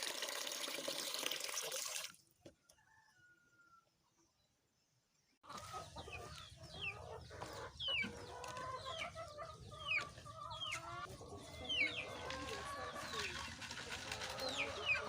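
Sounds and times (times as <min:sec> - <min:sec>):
chickens calling and clucking: 0:05.4 - 0:15.0.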